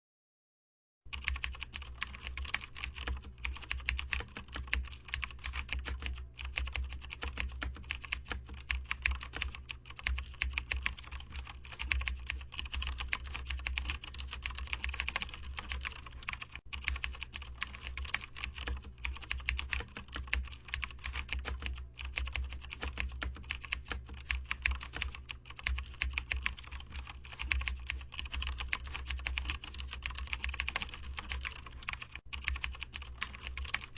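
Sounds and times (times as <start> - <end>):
typing on computer keyboard: 1.1 - 33.9.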